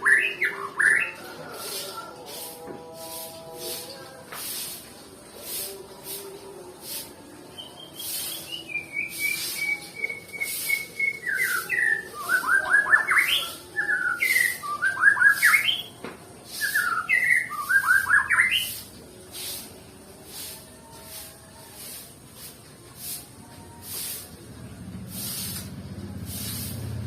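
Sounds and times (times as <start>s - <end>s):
songbird whistling: 7.6s - 18.8s.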